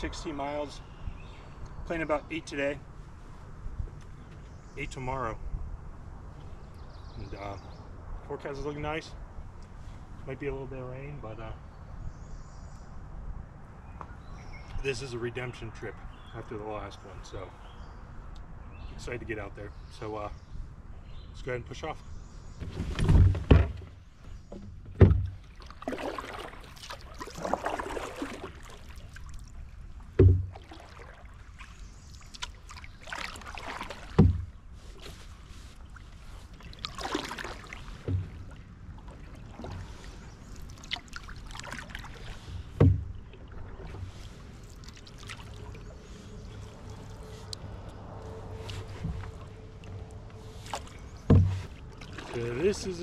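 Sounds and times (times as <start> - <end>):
paddle knocking against canoe: 22.6 - 28.9, 30.0 - 31.7, 32.3 - 34.6, 36.6 - 40.0, 40.6 - 44.1, 48.7 - 50.0, 50.7 - 52.6
paddle splashing in water: 22.6 - 53.0.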